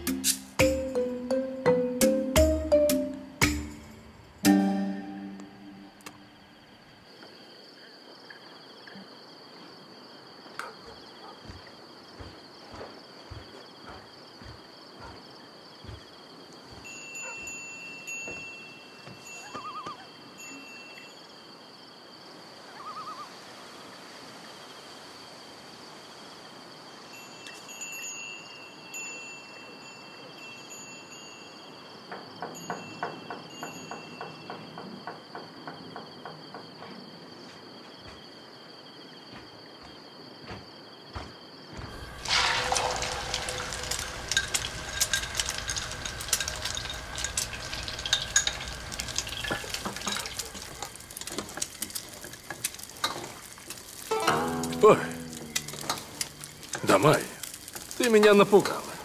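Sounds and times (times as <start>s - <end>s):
high insect trill: 0.0s - 59.0s
kitchen cooking hiss: 41.8s - 59.0s
kitchen clattering: 41.9s - 53.5s.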